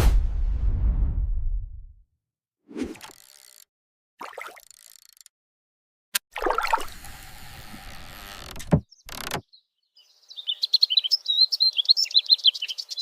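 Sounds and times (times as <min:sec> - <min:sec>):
small birds chirping: 0:08.8 - 0:13.0.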